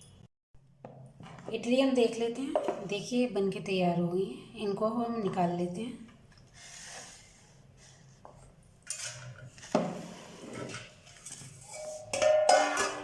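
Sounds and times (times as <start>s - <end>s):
dishes clattering and knocking: 8.9s - 13.0s.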